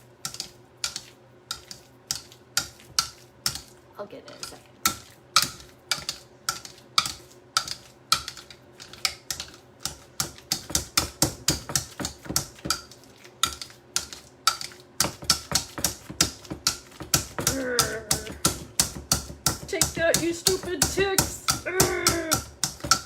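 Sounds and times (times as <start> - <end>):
avocado being mashed in a bowl: 0.0 - 23.0
utensil knocking against bowl: 13.5 - 23.0.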